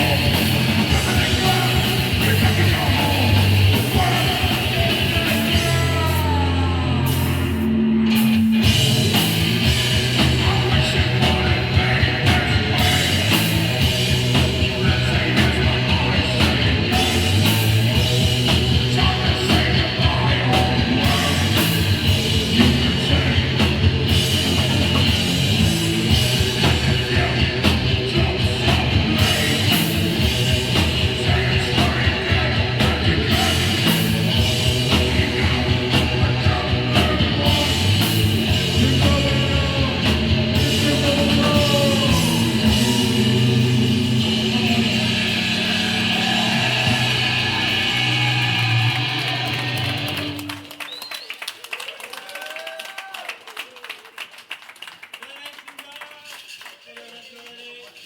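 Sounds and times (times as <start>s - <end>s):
shouted vocals: 0.0s - 7.3s, 40.6s - 50.6s, 51.7s - 54.1s
punk band playing live: 0.0s - 51.3s.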